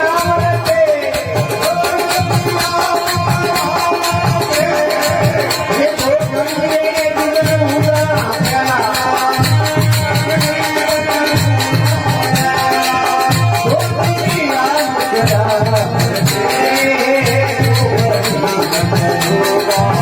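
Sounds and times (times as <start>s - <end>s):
jingling rattle percussion: 0.0s - 20.0s
steady drum beat: 0.0s - 20.0s.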